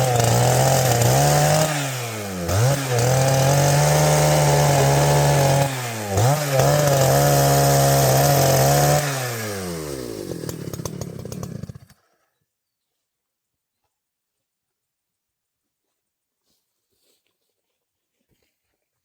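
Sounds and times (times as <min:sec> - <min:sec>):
chainsaw revving: 0:00.0 - 0:12.1.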